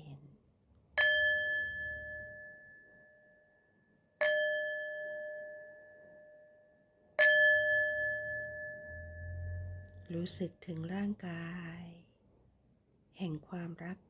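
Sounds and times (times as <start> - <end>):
meditation bell ringing: 1.0 - 3.6, 4.2 - 10.1.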